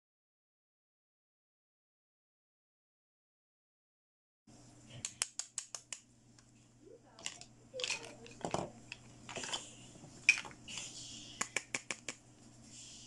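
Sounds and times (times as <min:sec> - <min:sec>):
plastic toy pieces clicking: 0:07.2 - 0:08.5
plastic toy pieces scraping and rustling: 0:07.2 - 0:10.8.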